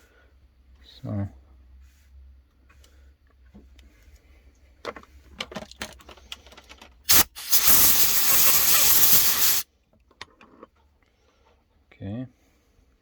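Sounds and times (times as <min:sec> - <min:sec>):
compressed air blast hissing: 0:07.1 - 0:09.6.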